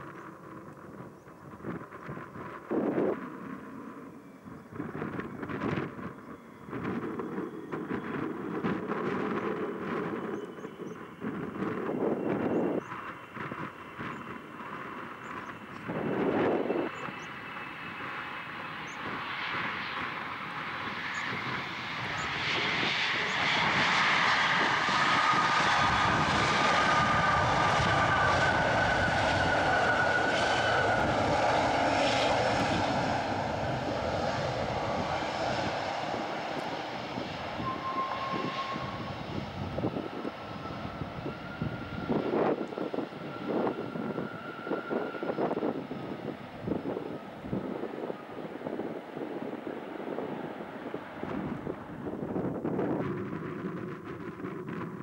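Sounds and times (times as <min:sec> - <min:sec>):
jet aircraft passing overhead: 0:00.0 - 0:55.0.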